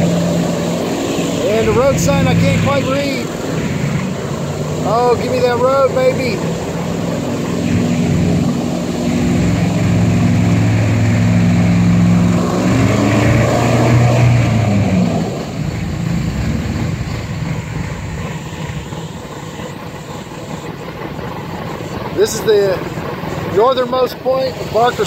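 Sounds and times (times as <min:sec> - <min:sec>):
airboat engine and propeller hum: 0:00.0 - 0:25.0.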